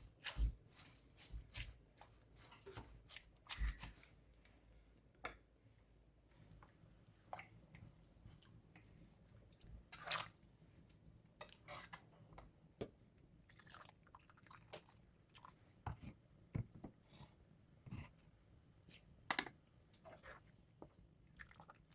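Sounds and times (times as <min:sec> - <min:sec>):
kitchen clicks and scrapes: 0:11.4 - 0:12.1.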